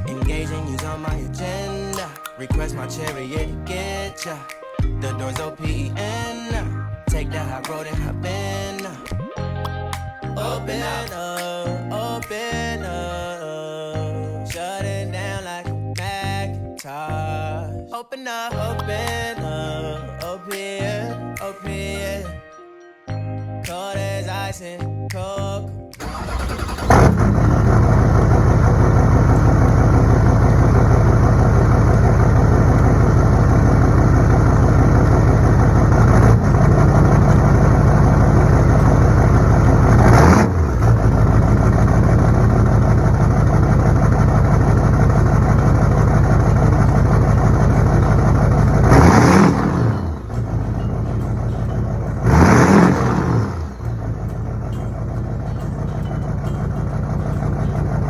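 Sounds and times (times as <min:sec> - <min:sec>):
vehicle engine idling and revving: 0:26.0 - 0:58.0.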